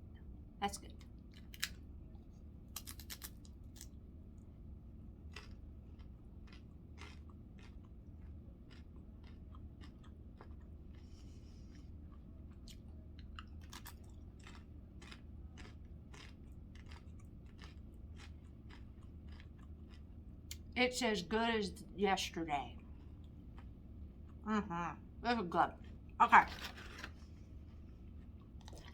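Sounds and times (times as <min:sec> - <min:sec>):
steady low hum: 0:00.0 - 0:28.9
chewing with crunches: 0:01.0 - 0:04.0, 0:05.2 - 0:20.7, 0:26.7 - 0:28.9.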